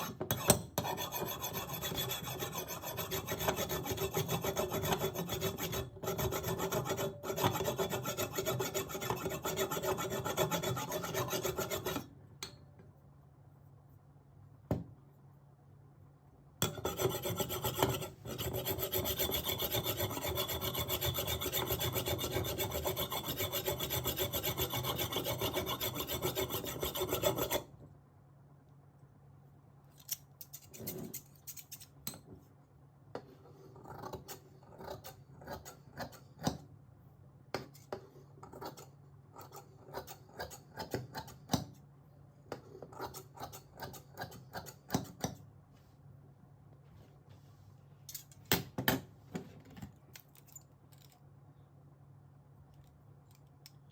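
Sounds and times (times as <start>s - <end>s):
scissor blade rasping on sharpener: 37.8s - 41.4s.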